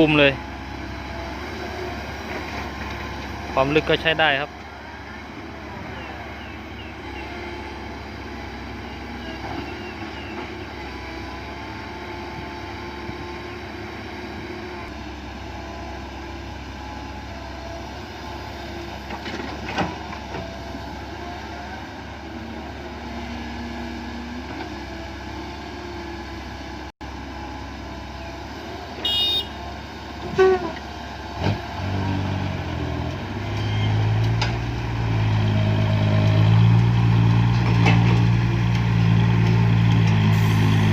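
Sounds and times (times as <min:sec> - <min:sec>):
excavator diesel engine running: 0:00.0 - 0:40.9
louder diesel engine: 0:00.0 - 0:40.9.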